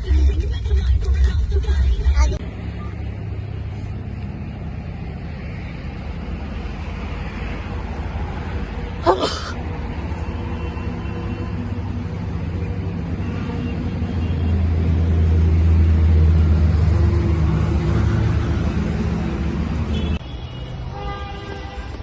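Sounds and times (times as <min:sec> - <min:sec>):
road and engine rumble in car: 0:00.0 - 0:20.1.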